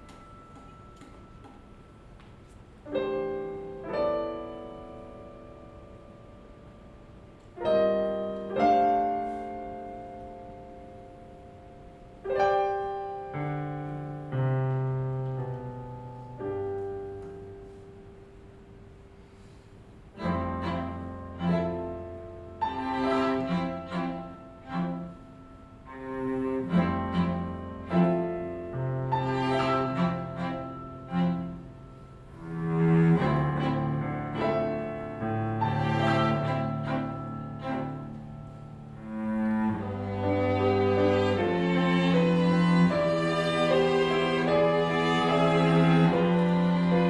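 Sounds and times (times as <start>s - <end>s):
low cello notes: 0.0s - 47.0s
piano chords: 0.0s - 47.0s
string ensemble playing: 20.1s - 47.0s.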